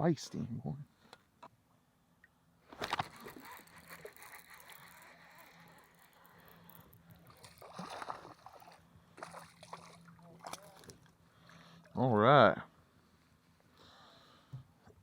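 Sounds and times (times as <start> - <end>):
water sloshing around kayak: 6.9 - 12.0.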